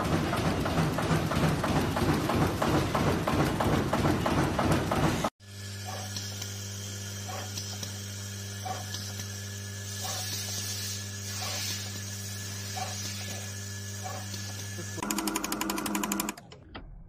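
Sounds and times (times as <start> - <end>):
machine electric hum: 5.4 - 16.9.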